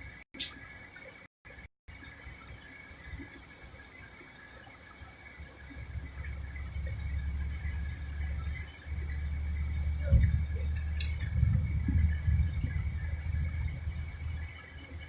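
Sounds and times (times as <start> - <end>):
high-pitched drone: 4.5 - 15.0
low rumble: 5.8 - 15.0.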